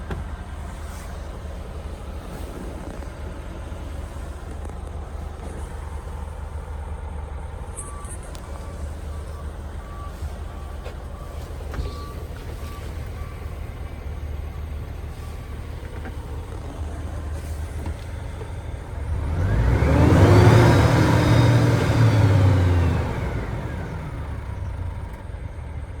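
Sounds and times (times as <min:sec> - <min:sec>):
diesel truck engine idling and revving: 0:00.0 - 0:26.0
faint beeping: 0:00.3 - 0:25.9.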